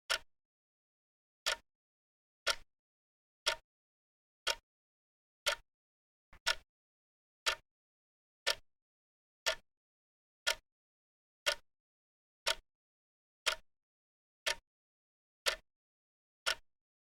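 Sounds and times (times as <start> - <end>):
clock ticking: 3.4 - 3.6, 4.4 - 4.6, 5.4 - 5.6, 6.4 - 6.6, 7.4 - 7.6, 9.4 - 9.6, 12.4 - 12.6, 13.4 - 13.6, 15.4 - 15.6.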